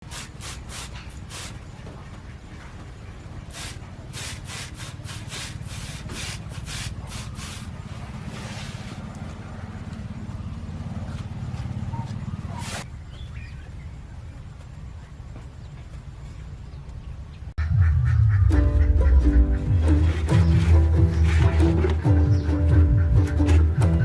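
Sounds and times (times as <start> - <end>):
blade scraping a branch: 3.6 - 9.1, 19.9 - 22.0
low rumble: 17.6 - 23.4.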